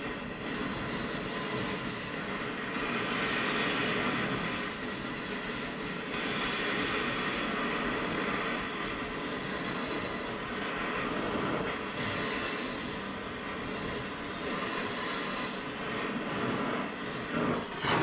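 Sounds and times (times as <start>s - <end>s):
torch flame hissing: 0.0s - 18.0s.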